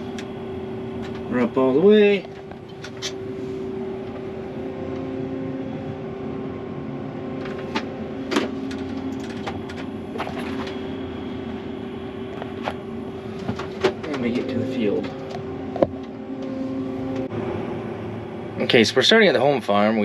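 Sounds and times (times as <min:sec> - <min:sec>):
combine harvester engine hum: 0:00.0 - 0:20.0
steady tones: 0:00.0 - 0:20.0
sharp clicks and rattles: 0:07.4 - 0:09.9.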